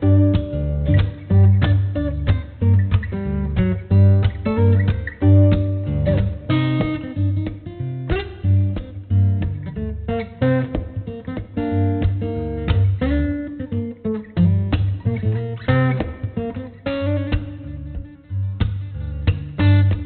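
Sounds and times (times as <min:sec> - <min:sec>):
bass line: 0:00.0 - 0:13.6
acoustic guitar plucked and strummed: 0:00.0 - 0:20.0.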